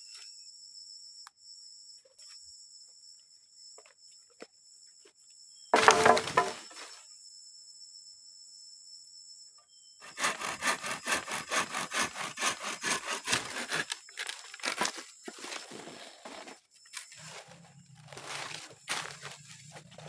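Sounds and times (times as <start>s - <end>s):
hand saw cutting wood: 5.8s - 6.6s, 10.0s - 15.0s.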